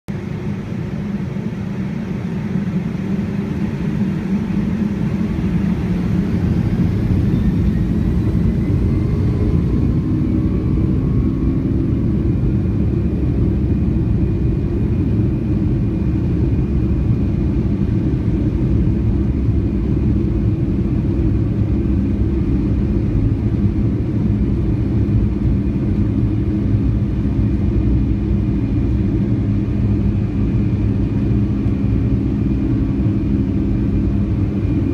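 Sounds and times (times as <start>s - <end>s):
jet engines spooling up: 3.0s - 14.4s.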